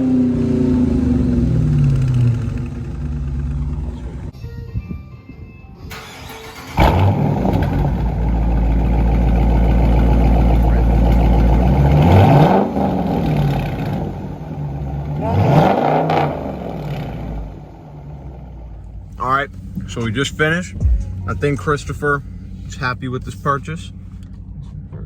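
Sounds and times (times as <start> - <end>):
engine starting and revving: 5.9 - 14.4, 15.2 - 17.6.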